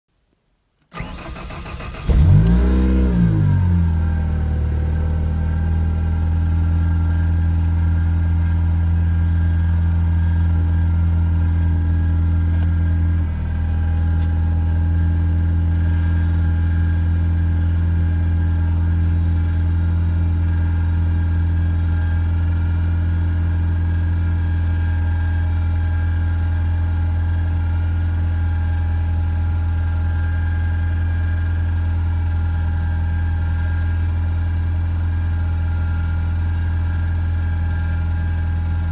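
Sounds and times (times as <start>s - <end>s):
starter motor cranking: 1.0s - 2.6s
car engine idling: 1.0s - 38.9s.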